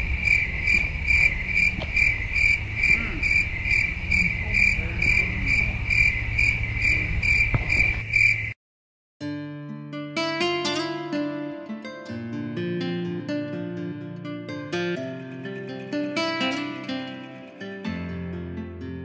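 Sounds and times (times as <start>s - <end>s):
low rumble: 0.0s - 8.2s
insects chirping: 0.0s - 8.6s, 14.6s - 18.8s.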